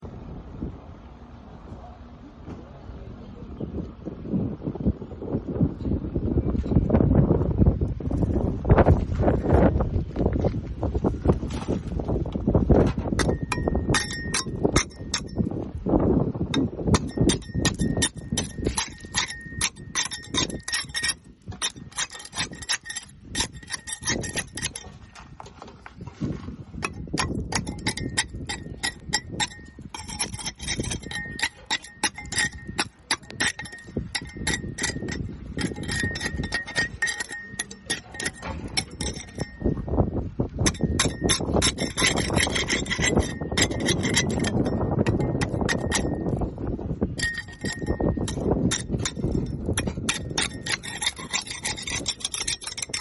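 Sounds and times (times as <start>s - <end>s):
scraper scratching boat hull: 17.7s - 39.5s, 47.2s - 53.0s.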